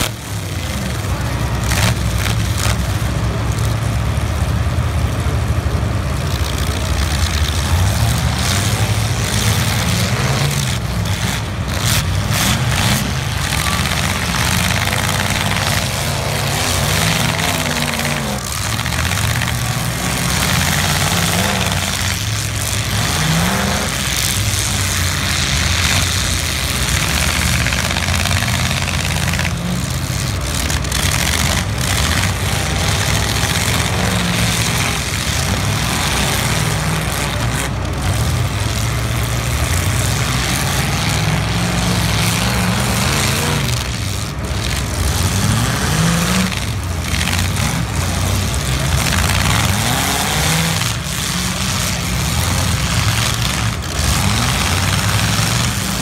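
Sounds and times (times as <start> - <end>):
car engines revving hard: 0.0 - 56.0.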